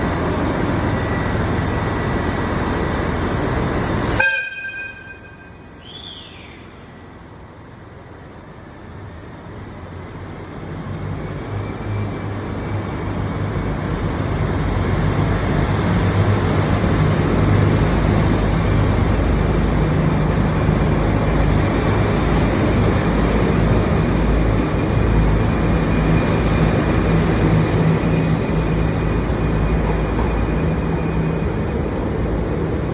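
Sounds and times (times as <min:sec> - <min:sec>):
train running noise: 0:00.0 - 0:32.9
train horn blast: 0:04.0 - 0:05.6.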